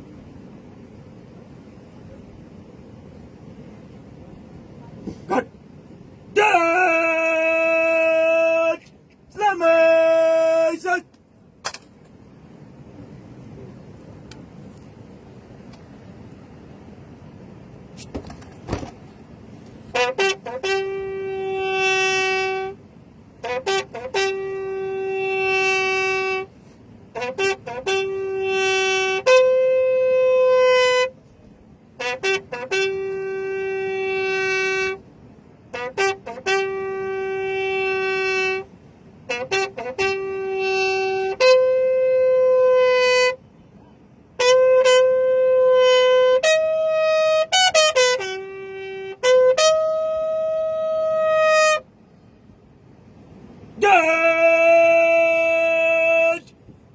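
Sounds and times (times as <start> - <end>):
horn calls: 4.7 - 5.6, 6.3 - 11.1, 18.7 - 31.3, 31.9 - 51.9, 53.7 - 56.6.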